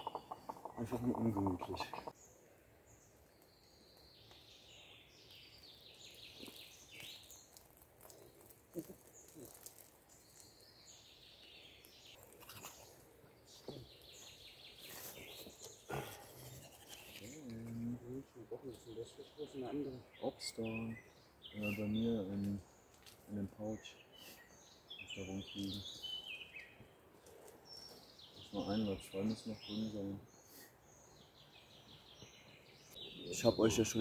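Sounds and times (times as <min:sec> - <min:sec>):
songbird trilling: 0:00.0 - 0:02.2.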